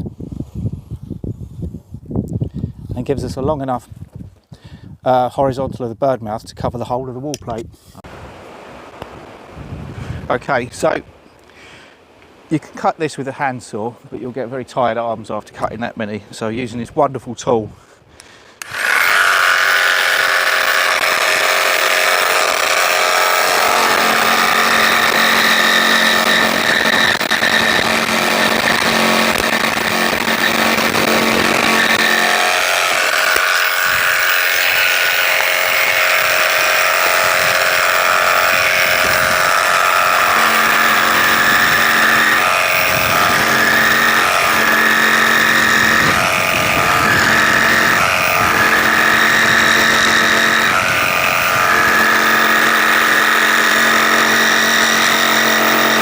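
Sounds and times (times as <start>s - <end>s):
power saw cutting wood: 18.6s - 56.0s.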